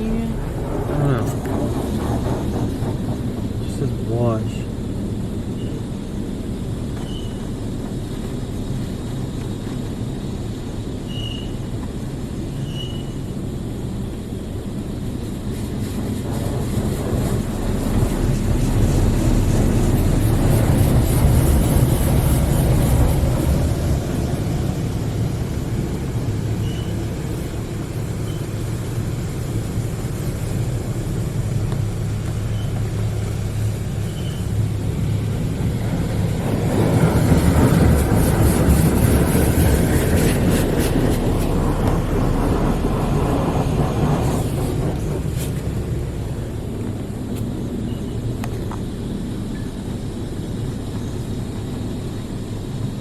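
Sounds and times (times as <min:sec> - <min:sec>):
water spraying onto car: 0:00.0 - 0:11.1, 0:13.4 - 0:47.8
car wash machine humming: 0:00.0 - 0:53.0.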